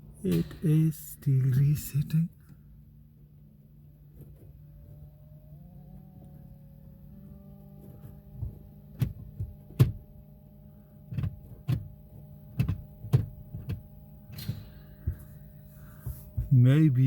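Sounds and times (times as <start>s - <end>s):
steady low hum: 0.0s - 17.0s
sharp clicks and knocks: 12.5s - 15.2s.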